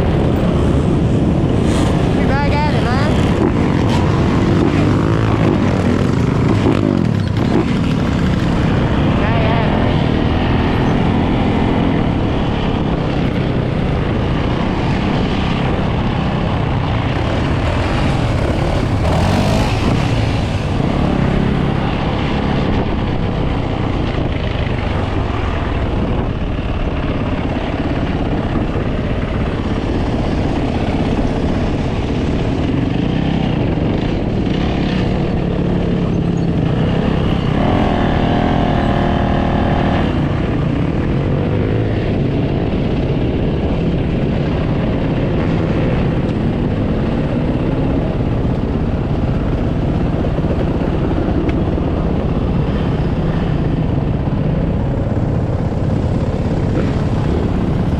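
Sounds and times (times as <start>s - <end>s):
dirt bike and atv engines revving: 0.0s - 57.9s.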